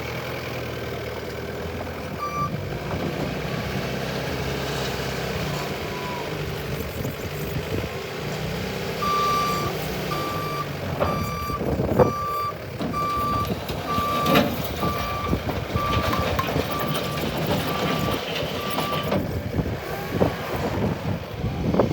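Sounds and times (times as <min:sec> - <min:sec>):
diesel engine running: 0:00.0 - 0:21.9
reversing alarm beeping: 0:02.2 - 0:02.6, 0:09.0 - 0:19.1.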